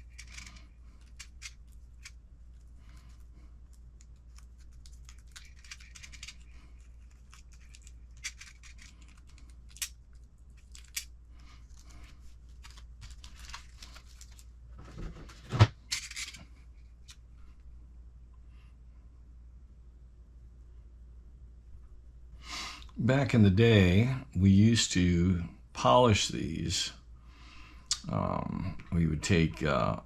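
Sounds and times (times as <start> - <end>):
scratchy rustling: 0.0 - 9.9, 10.5 - 16.4
small parts clicking: 0.0 - 11.1.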